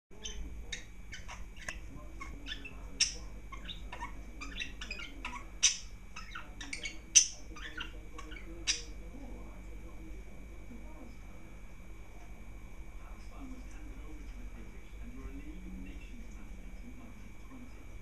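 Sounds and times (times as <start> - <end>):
small birds chirping: 0.1 - 11.6
sharp bird calls: 0.2 - 9.0.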